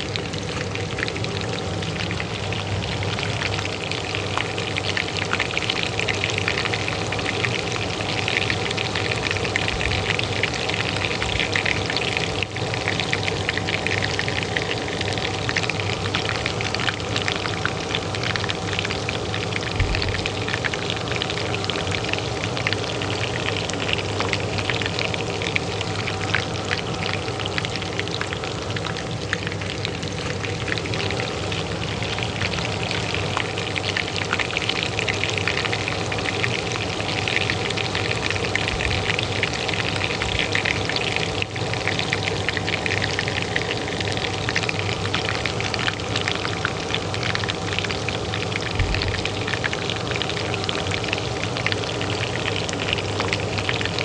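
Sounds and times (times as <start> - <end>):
hot oil sizzling in a pan: 0.0 - 54.0
range hood fan humming: 0.0 - 54.0.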